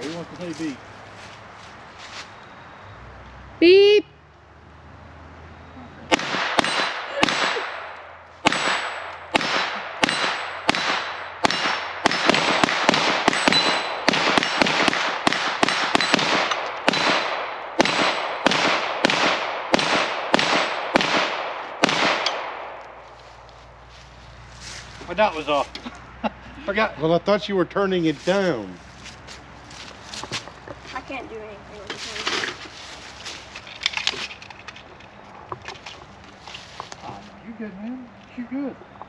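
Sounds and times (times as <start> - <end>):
rapid handgun fire: 6.1 - 22.8.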